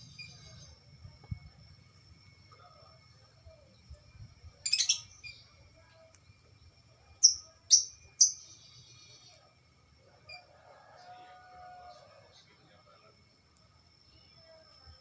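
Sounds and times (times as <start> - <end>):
faint high-pitched tone: 0.0 - 15.0
songbird chattering and chirping: 4.6 - 5.6, 6.2 - 9.4.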